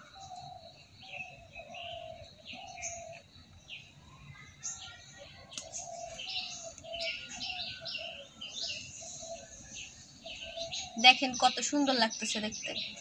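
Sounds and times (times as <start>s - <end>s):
lower repeated bird call: 0.0s - 13.0s
small birds chirping: 0.0s - 13.0s
faint click: 5.5s - 5.8s.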